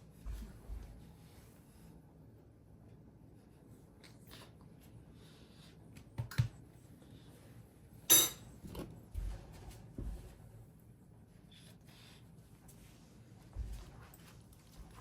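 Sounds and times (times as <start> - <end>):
sharp clink: 8.1 - 8.5.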